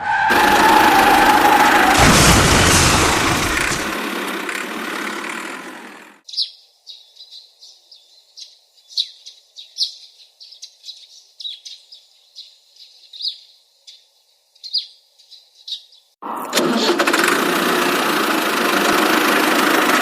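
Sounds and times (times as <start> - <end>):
loud rushing noise: 0.3 - 6.1
small birds chirping: 6.2 - 16.2.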